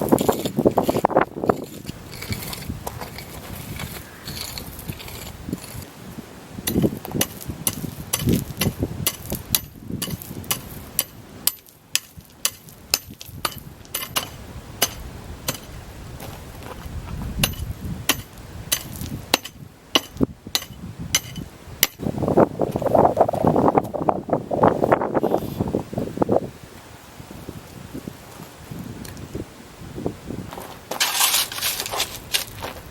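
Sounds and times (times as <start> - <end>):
hammer tapping on paving stones: 6.7 - 15.7.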